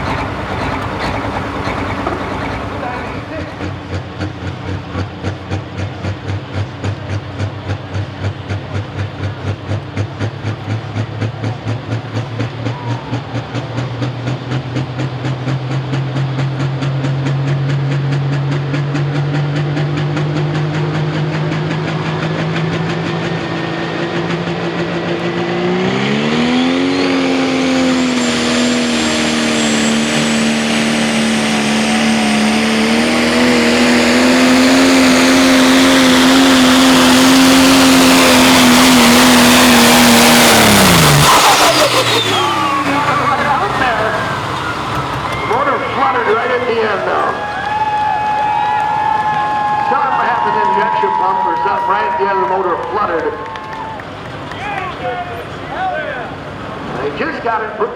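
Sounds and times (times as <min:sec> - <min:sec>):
diesel engine revving: 0:00.0 - 0:57.9
turbo whine: 0:24.2 - 0:50.0.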